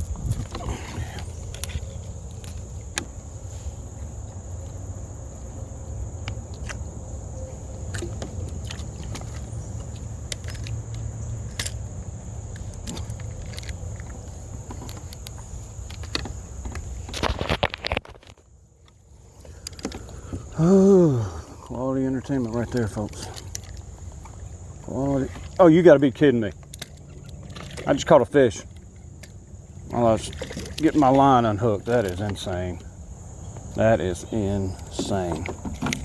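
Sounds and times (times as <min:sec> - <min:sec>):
clicks and knocks on kayak hull: 0:00.0 - 0:04.4, 0:07.8 - 0:20.6, 0:28.6 - 0:32.9, 0:33.5 - 0:36.0.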